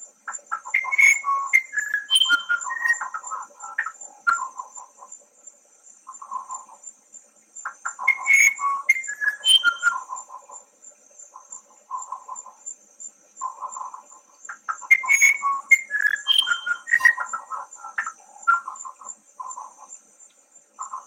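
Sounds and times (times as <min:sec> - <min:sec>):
insects chirping: 0:00.0 - 0:21.0
birds whistling and trilling: 0:00.5 - 0:04.6, 0:07.8 - 0:10.2, 0:14.7 - 0:19.6.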